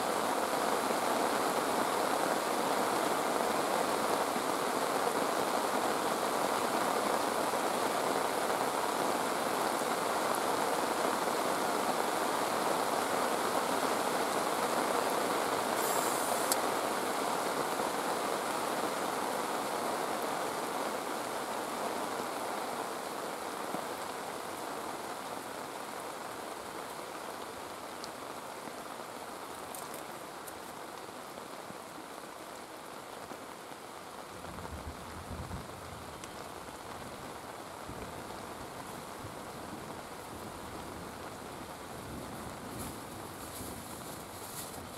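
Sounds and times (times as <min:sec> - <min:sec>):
falling water rushing: 0:00.0 - 0:34.2.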